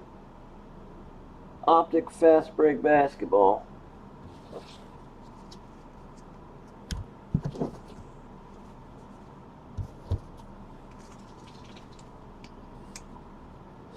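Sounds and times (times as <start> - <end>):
low steady hiss: 0.0 - 13.9
soft thumps and knocks: 6.9 - 7.9, 9.8 - 10.4.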